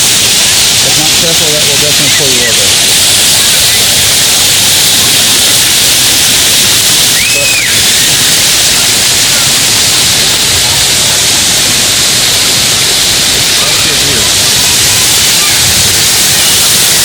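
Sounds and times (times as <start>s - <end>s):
waterfall roaring: 0.0s - 17.0s
high whistle-like call: 1.4s - 5.4s, 7.0s - 9.5s, 15.2s - 17.0s.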